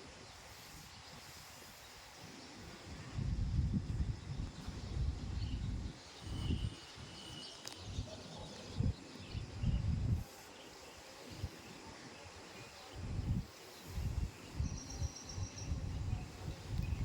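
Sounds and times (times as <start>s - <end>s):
wind buffeting microphone: 3.0s - 6.8s, 7.8s - 10.3s, 13.0s - 17.0s.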